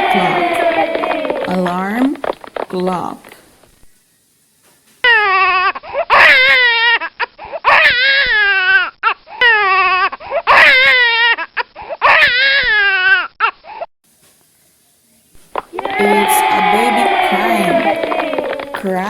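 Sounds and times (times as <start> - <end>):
infant crying: 0.0 - 1.8, 5.0 - 13.3, 15.8 - 19.0.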